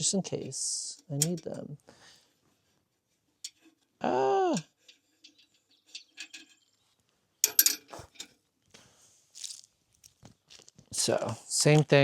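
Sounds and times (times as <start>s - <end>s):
short pitched vocal sound: 4.0s - 4.7s
plastic bag of screws crinkling: 9.3s - 10.9s.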